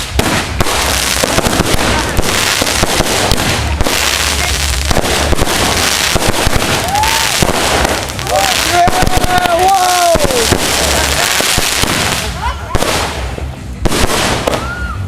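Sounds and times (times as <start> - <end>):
fireworks crackling and banging: 0.0 - 15.0
low rumble: 0.0 - 15.0
firework whistle: 4.2 - 11.0, 14.0 - 15.0.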